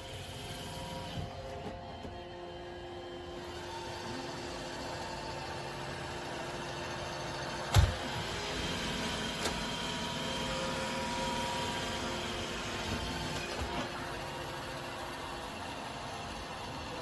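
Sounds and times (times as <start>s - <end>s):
robot vacuum motor hum: 0.0s - 17.0s
thump: 7.7s - 8.0s.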